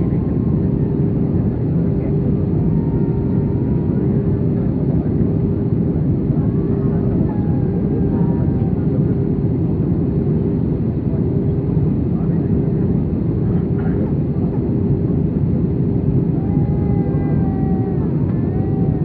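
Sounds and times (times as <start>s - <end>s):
aircraft cabin engine roar: 0.0s - 19.0s.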